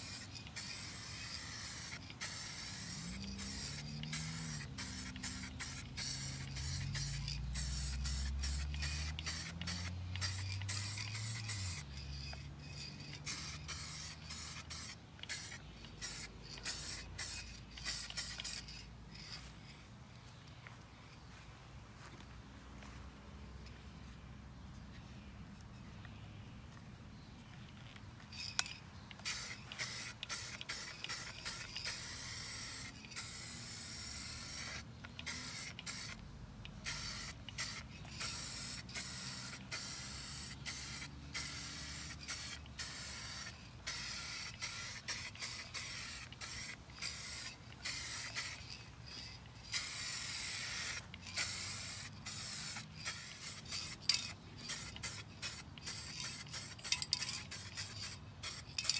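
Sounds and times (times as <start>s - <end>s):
paint spraying in hissing bursts: 0.0s - 19.5s, 28.4s - 58.9s.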